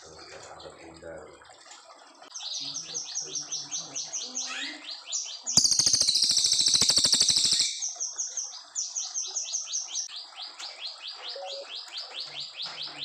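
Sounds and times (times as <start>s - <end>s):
bird singing high slurred notes: 2.4s - 10.1s
bird rattling trill: 5.6s - 8.1s.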